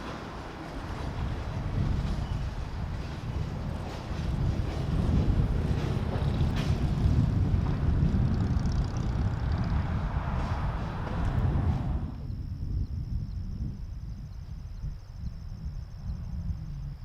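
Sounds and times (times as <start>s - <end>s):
low vehicle rumble: 0.0s - 13.1s
wind buffeting microphone: 0.0s - 17.0s.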